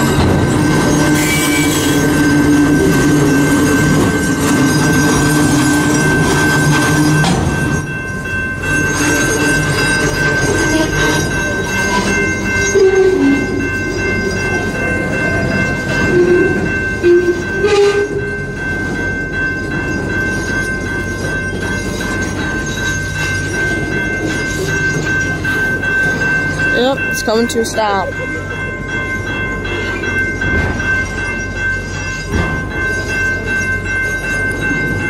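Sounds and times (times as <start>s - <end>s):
freight train rumbling past: 0.0s - 35.0s
high-pitched wheel squeal: 0.9s - 2.6s.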